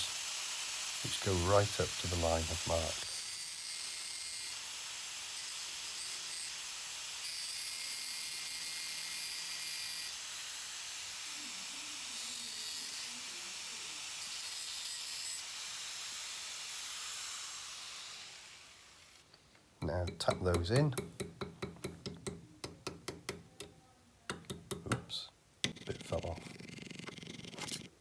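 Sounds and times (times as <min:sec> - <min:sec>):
power cutting tool cutting steel: 0:00.0 - 0:19.2.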